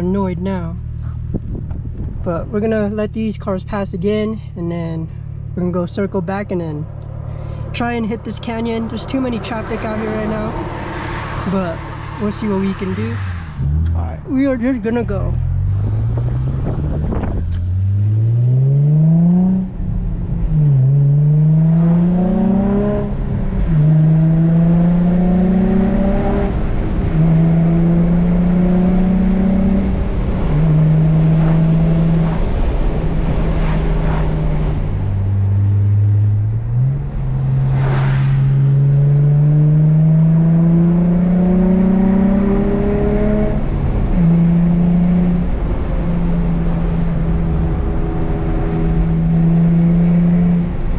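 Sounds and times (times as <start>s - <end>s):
car engine revving through gear shifts: 15.0s - 37.8s, 38.5s - 50.9s.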